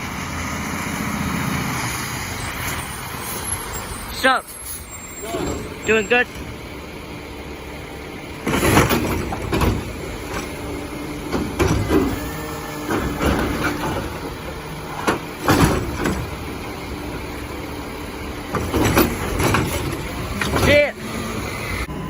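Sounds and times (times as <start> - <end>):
garbage truck engine running: 0.0 - 22.0
hydraulic whine: 2.4 - 22.0
loud knocks and clanks: 8.4 - 16.9, 18.4 - 21.0.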